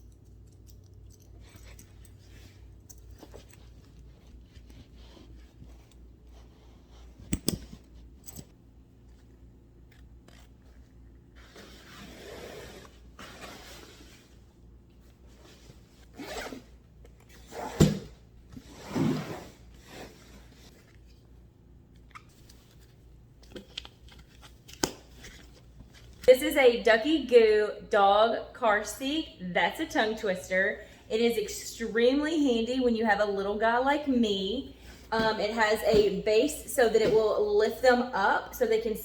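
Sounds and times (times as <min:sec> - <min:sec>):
zipper pulled: 0:11.4 - 0:14.2, 0:16.0 - 0:18.0.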